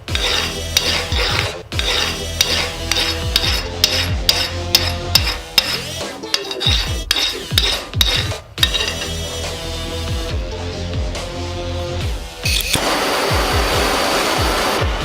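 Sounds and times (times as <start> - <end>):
hand file rasping on steel: 0.0 - 9.2.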